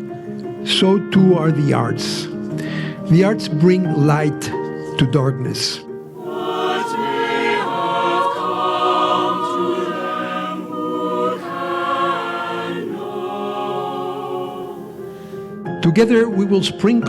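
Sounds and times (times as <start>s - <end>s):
choir singing chords: 6.1s - 15.6s.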